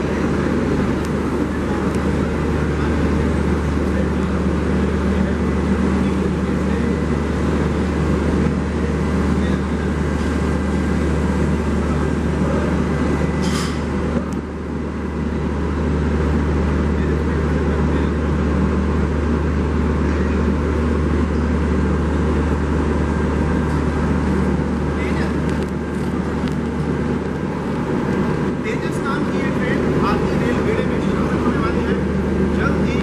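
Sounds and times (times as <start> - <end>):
train machinery droning: 0.0 - 33.0.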